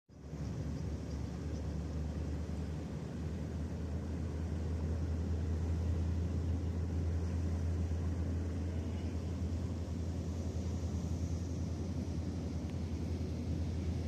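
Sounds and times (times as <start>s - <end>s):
boat engine rumbling: 0.1s - 14.0s.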